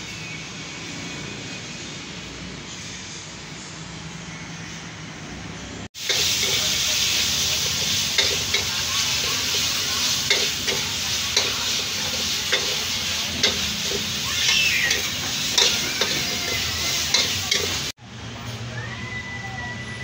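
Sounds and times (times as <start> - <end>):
food sizzling in a pan: 6.0 - 18.0
utensil clinking on a pan: 7.5 - 17.9.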